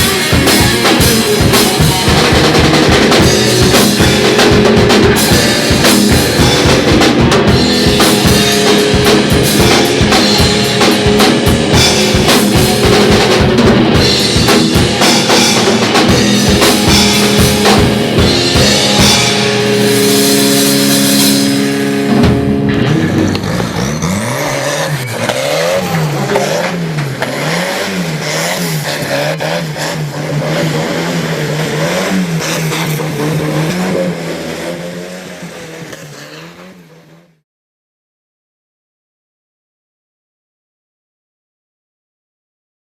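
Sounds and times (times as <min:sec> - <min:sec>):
band music with drum kit: 0:00.0 - 0:28.6
vehicle engine revving: 0:00.0 - 0:37.4.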